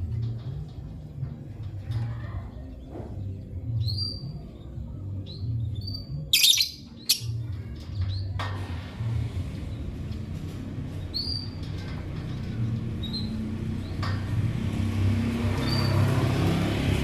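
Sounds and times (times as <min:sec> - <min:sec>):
lovebirds chirping: 0:05.4 - 0:07.4
bird shrieking harshly: 0:06.4 - 0:07.3.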